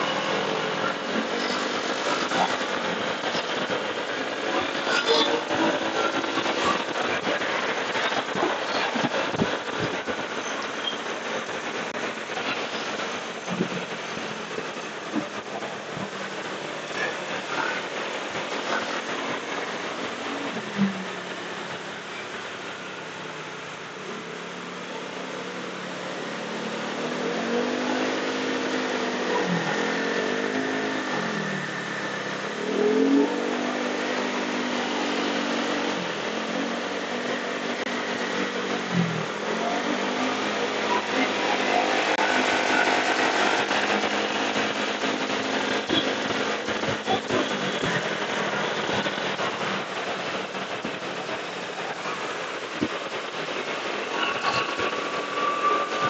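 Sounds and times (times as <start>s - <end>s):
wind and road noise: 0.0s - 56.0s
motorcycle engine revving: 25.6s - 52.4s.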